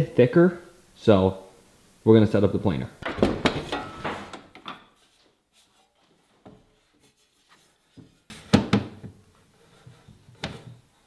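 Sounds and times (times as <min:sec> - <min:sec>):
wood tapping and knocking: 0:03.0 - 0:04.8
wood clattering: 0:03.0 - 0:04.9.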